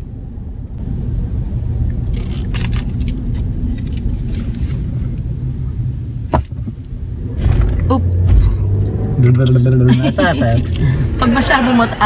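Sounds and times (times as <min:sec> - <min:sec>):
road and engine rumble: 0:00.0 - 0:12.0
rattles and jingling clicks: 0:02.1 - 0:04.8, 0:06.3 - 0:09.7.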